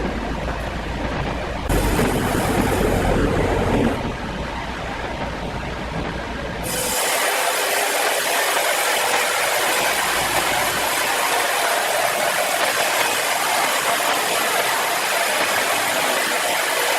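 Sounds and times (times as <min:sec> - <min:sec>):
low rumble: 0:00.0 - 0:06.6
saw cutting through timber: 0:01.7 - 0:04.0, 0:06.6 - 0:16.9.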